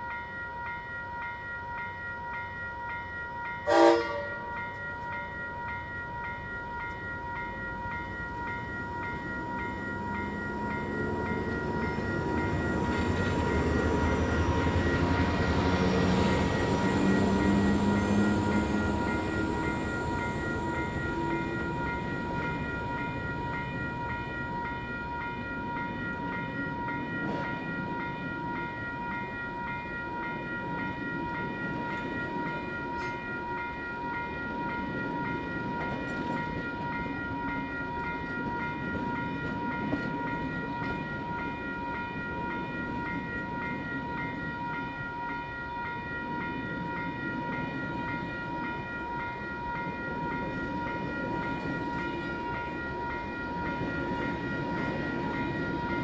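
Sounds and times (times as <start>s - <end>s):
high ringing tones: 0.0s - 56.0s
train rumble: 3.6s - 56.0s
locomotive engine drone: 8.3s - 25.2s.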